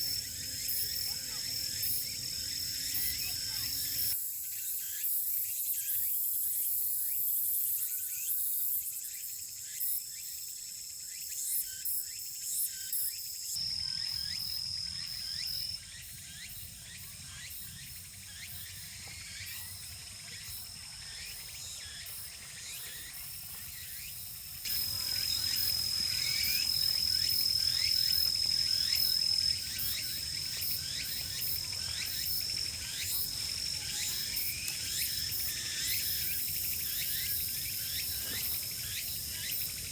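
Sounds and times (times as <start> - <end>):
crickets trilling: 0.0 - 6.2, 7.0 - 39.9
insect song hiss: 0.0 - 39.9.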